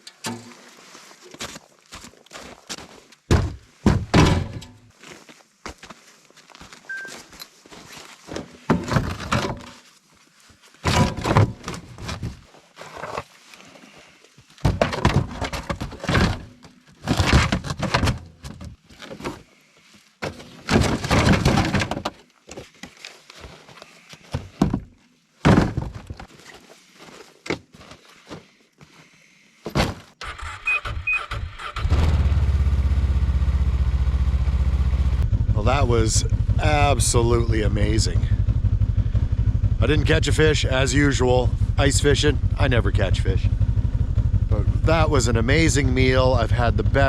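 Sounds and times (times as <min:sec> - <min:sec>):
thuds and crunching knocks: 0:03.3 - 0:04.9, 0:08.2 - 0:09.8, 0:10.8 - 0:13.2, 0:14.6 - 0:19.5, 0:20.2 - 0:23.6, 0:24.2 - 0:26.4, 0:29.6 - 0:30.2.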